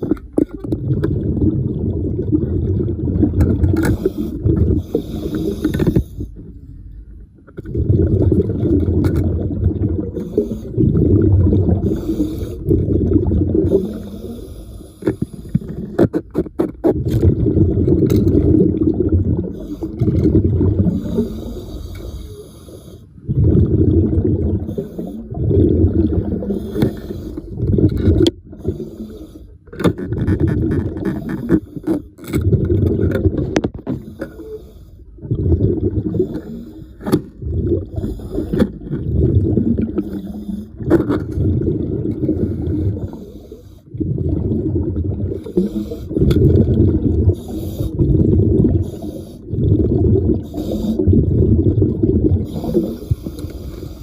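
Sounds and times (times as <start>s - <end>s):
exhaled bubbles rumbling underwater: 0.0s - 54.0s
hissing regulator breaths: 3.9s - 6.4s, 11.8s - 12.7s, 20.9s - 23.2s, 26.5s - 27.6s, 47.4s - 48.0s, 48.8s - 49.5s, 50.4s - 51.0s, 52.5s - 54.0s.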